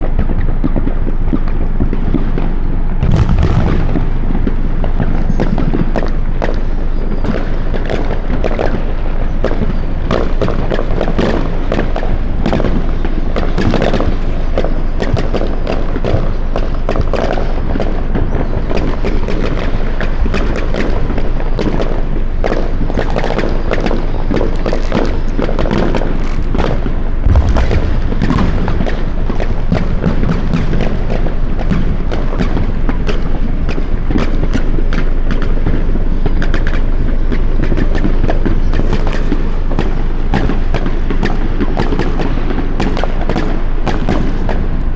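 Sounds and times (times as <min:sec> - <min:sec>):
fireworks bangs and pops: 0:00.1 - 0:44.9
heavy firework booms: 0:03.0 - 0:16.3, 0:22.4 - 0:34.5.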